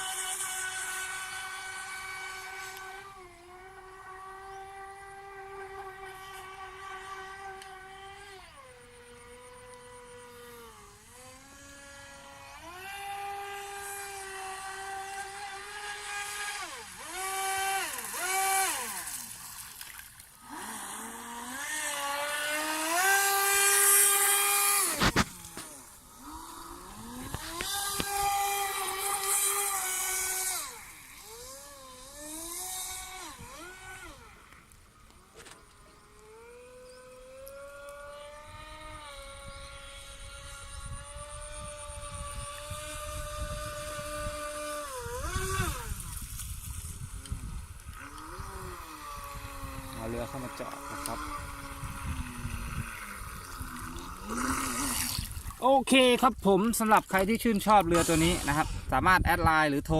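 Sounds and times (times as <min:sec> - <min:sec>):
model speedboat motor whining: 0:00.0 - 0:59.9
water spray hissing: 0:57.6 - 0:58.9.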